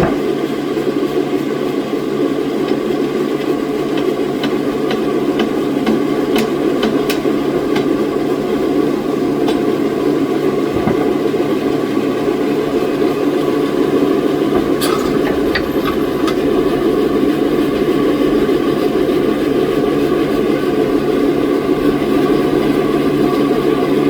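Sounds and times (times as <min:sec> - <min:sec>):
sharp knocks: 0:00.0 - 0:00.4
sawmill machinery running: 0:00.0 - 0:24.0.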